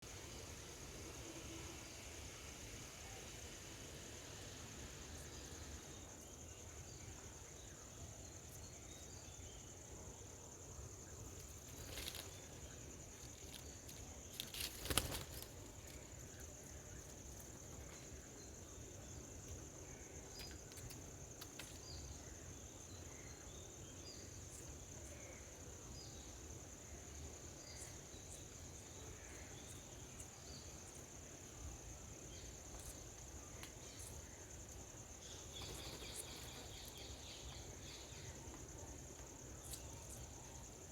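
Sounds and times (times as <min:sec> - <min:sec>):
insect drone: 0:00.0 - 0:40.9
faint bird chirps: 0:32.3 - 0:38.8.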